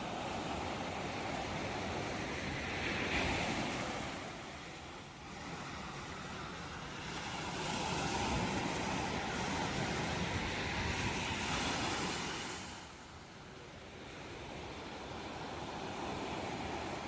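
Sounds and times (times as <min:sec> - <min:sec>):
ocean waves washing ashore: 0:00.0 - 0:17.0.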